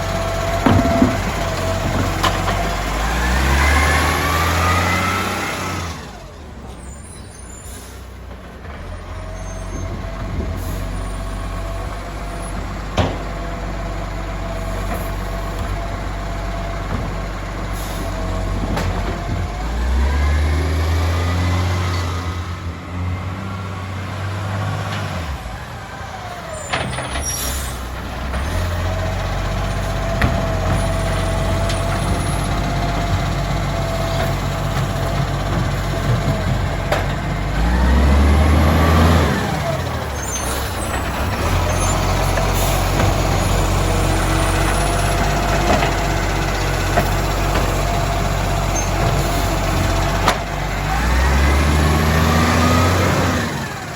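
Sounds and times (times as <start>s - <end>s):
diesel truck engine revving: 0.0s - 53.9s
air brake hiss: 7.4s - 8.2s.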